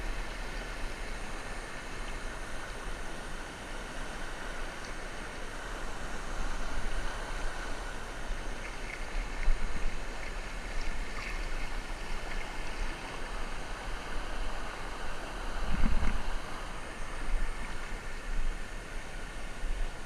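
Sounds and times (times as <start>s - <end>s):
creek water rushing: 0.0s - 20.0s
low rumbling on microphone: 15.4s - 18.6s.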